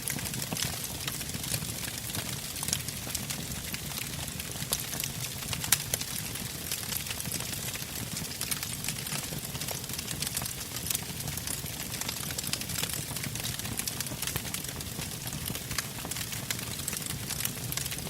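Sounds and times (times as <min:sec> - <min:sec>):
campfire crackling: 0:00.0 - 0:18.0
burning logs popping: 0:00.1 - 0:18.0.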